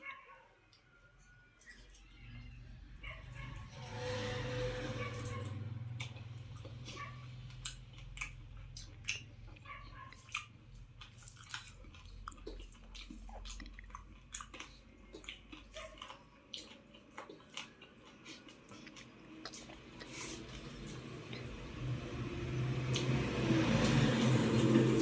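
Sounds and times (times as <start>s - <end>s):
person chewing: 5.2s - 22.0s, 22.8s - 25.0s
mouth clicks and smacks: 7.5s - 21.4s.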